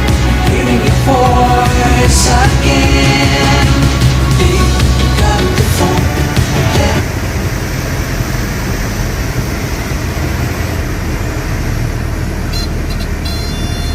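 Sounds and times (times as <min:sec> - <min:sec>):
background music: 0:00.0 - 0:07.2
light airplane engine drone: 0:00.0 - 0:13.9.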